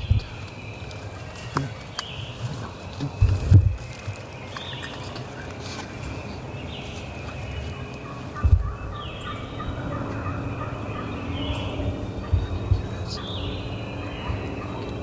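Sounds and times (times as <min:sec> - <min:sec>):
turkey gobbling: 0:07.7 - 0:15.0
low thump: 0:08.4 - 0:09.0.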